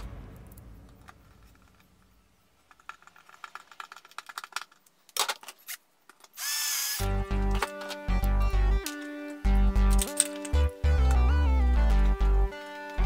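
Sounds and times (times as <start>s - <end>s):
clatter: 0.0s - 5.5s
background music: 7.0s - 13.0s.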